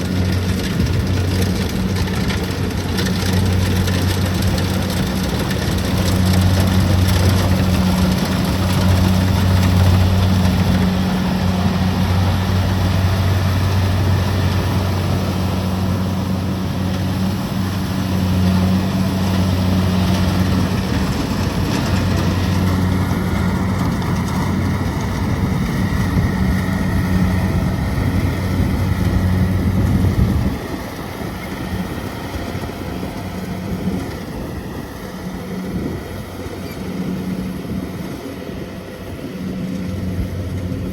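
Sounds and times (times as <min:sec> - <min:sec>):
diesel engine hum: 0:00.0 - 0:40.9
mechanical clatter of harvester: 0:00.0 - 0:40.9.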